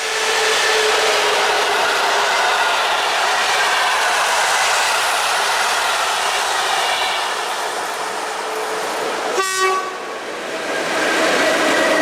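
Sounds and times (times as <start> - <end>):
train coaches rolling on rails: 0.0 - 12.0
locomotive horn blast: 9.4 - 10.0.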